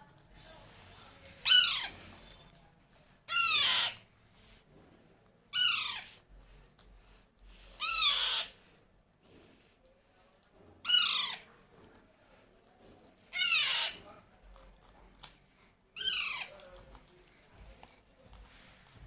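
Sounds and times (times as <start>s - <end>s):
parakeet squawking: 1.4s - 2.0s, 3.3s - 4.1s, 5.5s - 6.2s, 7.8s - 8.6s, 10.8s - 11.5s, 13.3s - 14.0s, 16.0s - 16.5s.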